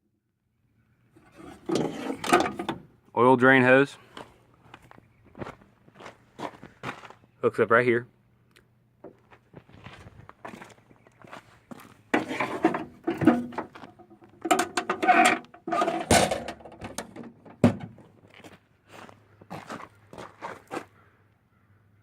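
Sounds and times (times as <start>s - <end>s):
hose and metal housing clattering: 1.2s - 2.9s, 12.1s - 18.1s.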